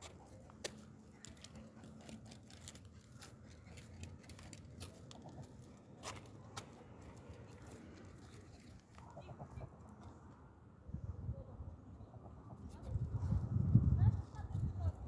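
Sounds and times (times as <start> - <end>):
animal pecking at ground: 0.0 - 10.2.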